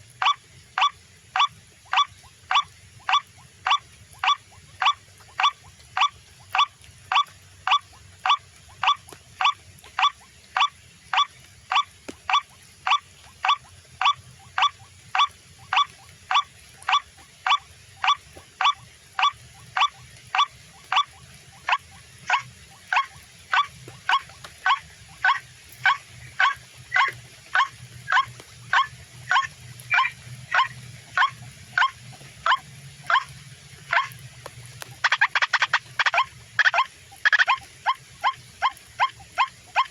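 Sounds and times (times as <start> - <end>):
waterhen call through loudspeaker: 0.0 - 39.9.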